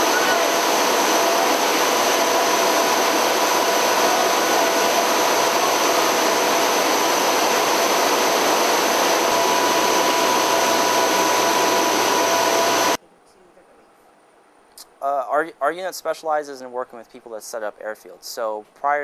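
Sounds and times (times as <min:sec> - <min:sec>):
turboprop engines droning: 0:00.0 - 0:13.0.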